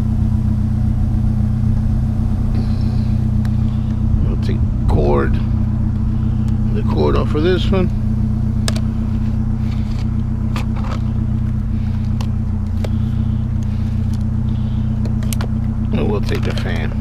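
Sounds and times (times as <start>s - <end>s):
pickup truck engine idling: 0.0s - 17.0s.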